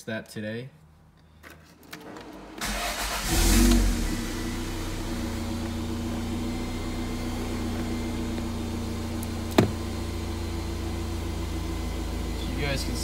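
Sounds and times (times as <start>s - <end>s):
car engine starting and idling: 1.8s - 13.0s.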